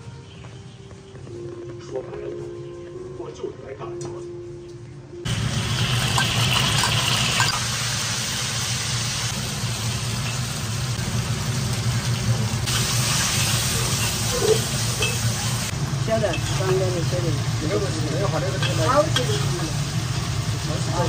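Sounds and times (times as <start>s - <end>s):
meat sizzling in hot oil: 5.3s - 21.0s
metal spatula stir-frying in wok: 5.8s - 20.6s.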